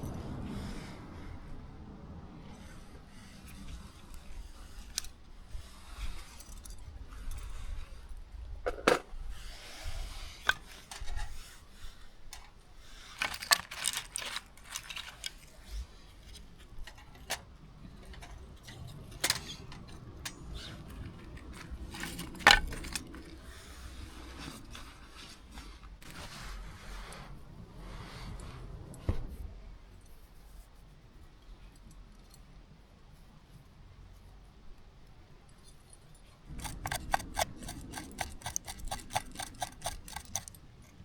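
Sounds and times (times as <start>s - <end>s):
small hard objects clinking: 13.1s - 15.7s.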